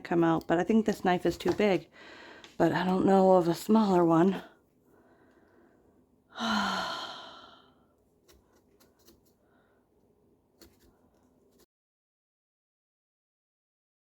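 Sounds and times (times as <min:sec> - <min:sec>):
woman sighing: 0:06.3 - 0:07.8.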